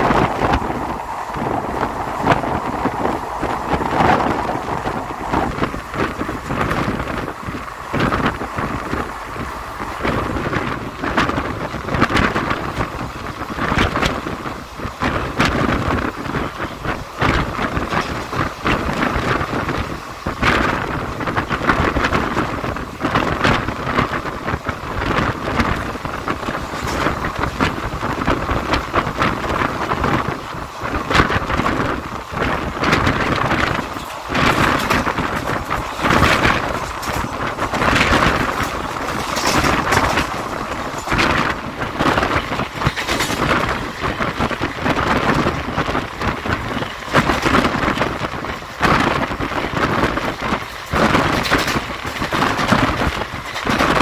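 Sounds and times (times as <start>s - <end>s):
train running noise: 0.0s - 54.0s
wheels clattering and knocking: 0.0s - 54.0s.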